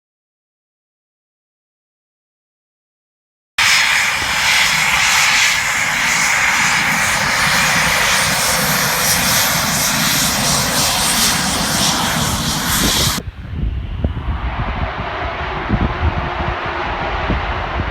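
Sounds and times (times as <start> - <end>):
jet engines at high power: 3.6 - 17.9
low rumble: 3.6 - 17.9.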